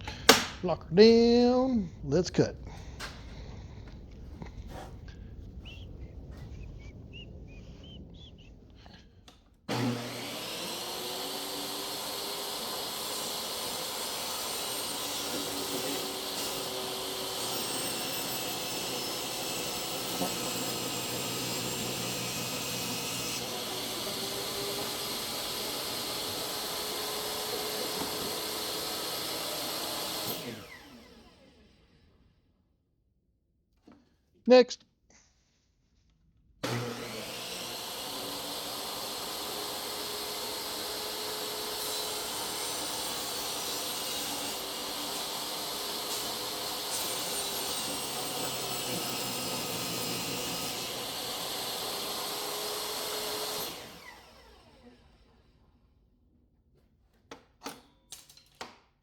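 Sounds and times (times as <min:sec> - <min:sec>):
electric power saw cutting: 0:09.7 - 0:31.9, 0:36.6 - 0:55.1.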